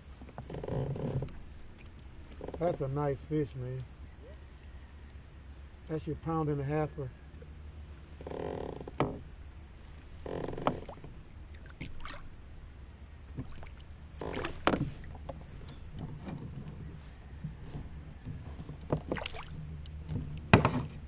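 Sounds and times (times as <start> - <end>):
steady low hum: 0.0 - 21.0
water splashing: 10.6 - 12.4, 13.3 - 15.2, 19.0 - 20.9
knocks and clicks on kayak: 14.2 - 16.8, 20.1 - 21.0.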